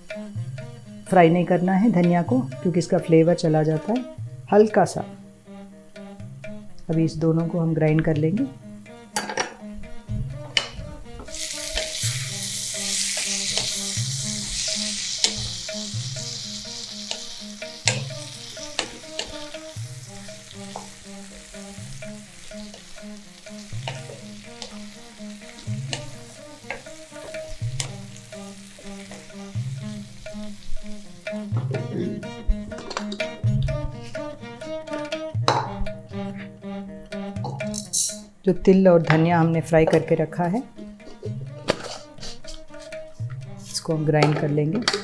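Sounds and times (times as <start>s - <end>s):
vegetables sizzling in oil: 0.0s - 7.2s, 8.4s - 35.8s.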